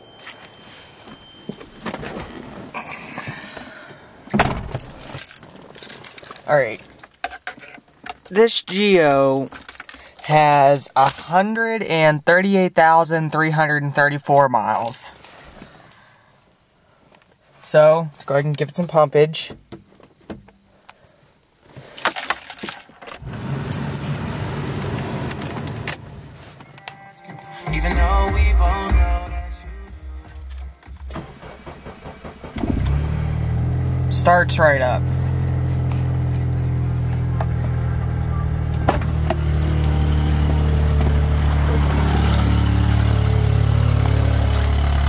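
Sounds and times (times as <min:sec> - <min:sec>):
keys jangling: 0:04.8 - 0:08.3, 0:09.4 - 0:10.2, 0:30.2 - 0:30.9
car engine starting and running: 0:23.2 - 0:26.9, 0:27.5 - 0:45.0.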